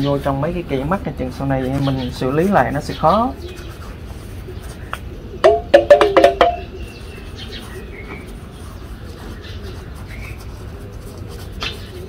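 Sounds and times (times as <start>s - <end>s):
low-pitched bird calls: 1.8s - 10.6s
high thin bird chirp: 4.5s - 10.5s.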